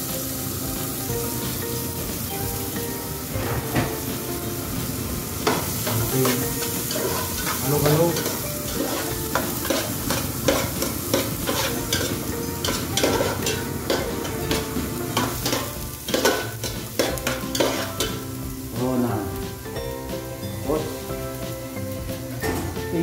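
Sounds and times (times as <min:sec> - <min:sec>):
garlic and onions sizzling: 0:00.0 - 0:23.0
utensil scraping pan: 0:05.4 - 0:18.2.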